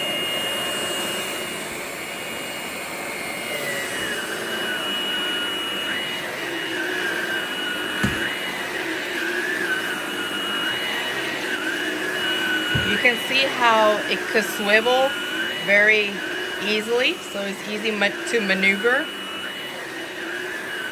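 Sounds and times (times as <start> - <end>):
stick vacuum running: 0.0 - 20.9
single knock: 8.0 - 8.3.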